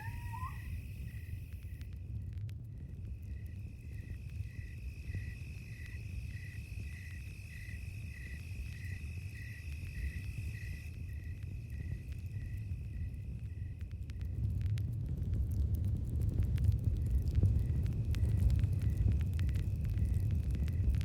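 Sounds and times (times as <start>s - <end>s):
high insect trill: 0.0s - 1.5s
crickets chirping: 0.0s - 1.9s, 2.7s - 14.0s
campfire rumble and crackles: 0.0s - 21.0s.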